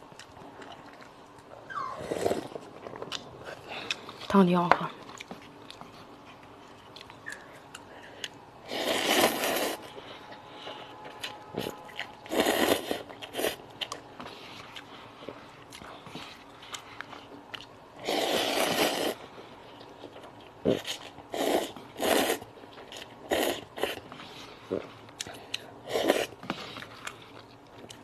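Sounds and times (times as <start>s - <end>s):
quiet chewing: 0.0s - 8.4s, 9.0s - 17.8s, 19.0s - 28.0s
loud noodle slurps: 8.6s - 9.8s, 12.3s - 13.6s, 18.0s - 19.2s, 20.7s - 24.0s, 25.9s - 26.4s.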